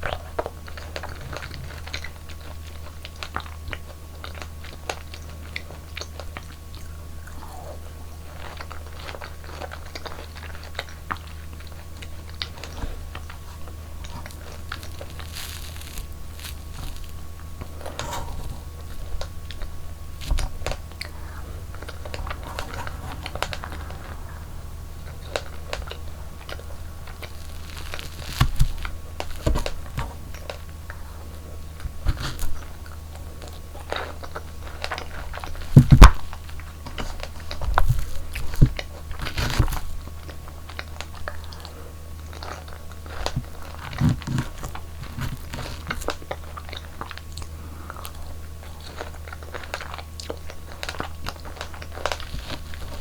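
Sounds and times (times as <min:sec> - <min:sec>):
low hum: 0:06.8 - 0:36.8
person biting and chewing: 0:12.0 - 0:30.8.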